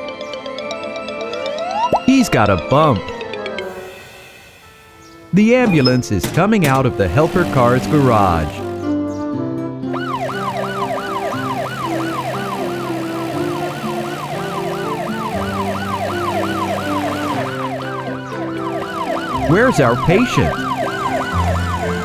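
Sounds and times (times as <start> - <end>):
backing tune of low notes: 0.0 - 8.9, 9.9 - 22.0
cartoon siren wailing: 0.6 - 3.7, 10.0 - 22.0.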